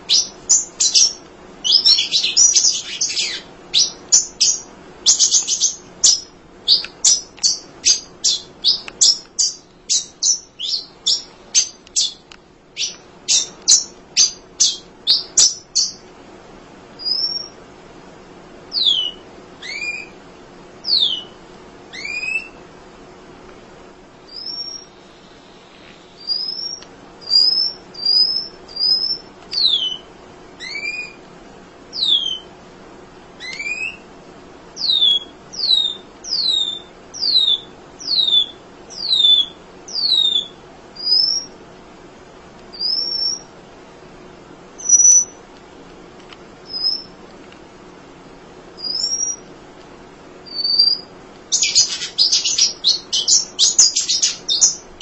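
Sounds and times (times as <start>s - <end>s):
bird chattering: 0.0s - 16.0s, 50.5s - 55.0s.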